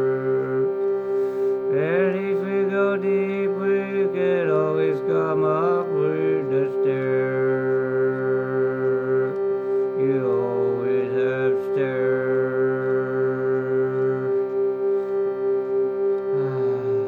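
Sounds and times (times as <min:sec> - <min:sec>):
person singing wordless: 0:00.0 - 0:00.8, 0:01.6 - 0:14.6, 0:16.3 - 0:17.0
shruti box drone: 0:00.0 - 0:17.0.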